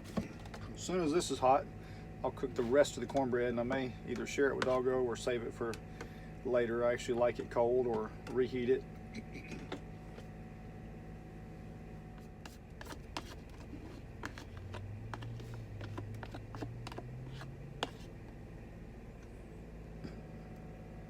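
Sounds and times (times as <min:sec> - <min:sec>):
steady low hum: 0:00.0 - 0:21.0
utensils scraping and tapping pan: 0:12.5 - 0:18.1.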